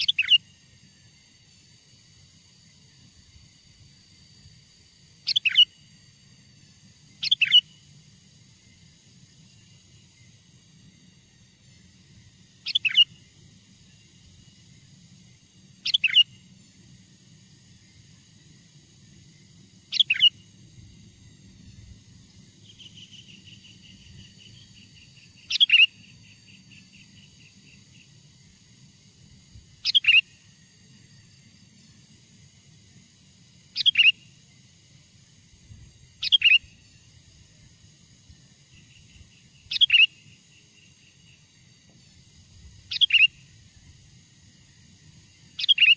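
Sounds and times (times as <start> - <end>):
bird downward-sweeping calls: 15.8 - 16.3, 42.9 - 43.4, 45.6 - 45.9.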